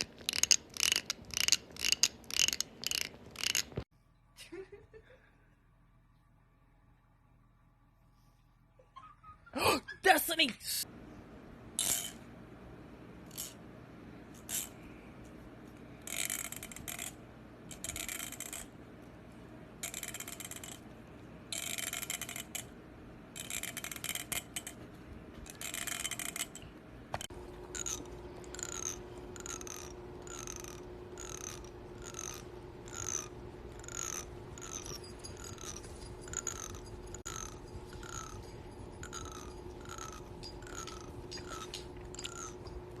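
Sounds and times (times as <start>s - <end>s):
fingernail scraping comb teeth: 0.0s - 3.8s, 21.5s - 22.7s, 27.7s - 42.7s
steady hum: 9.6s - 43.0s.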